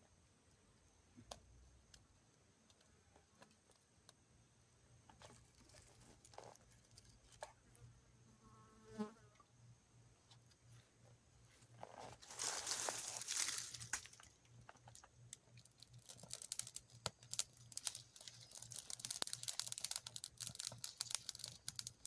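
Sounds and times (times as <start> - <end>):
faint clicks and ticks: 13.9 - 22.0.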